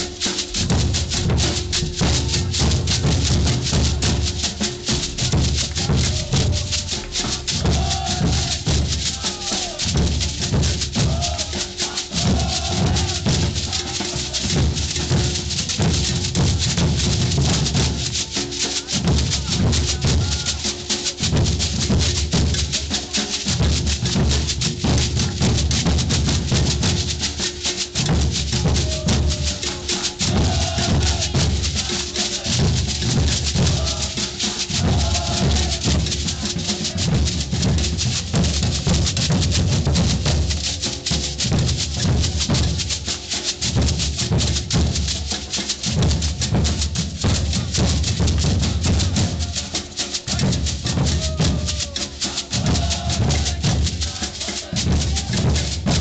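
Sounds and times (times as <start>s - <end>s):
bass drums beating: 0.0s - 56.0s
shakers rattling: 0.0s - 56.0s
faint voices: 48.6s - 55.7s.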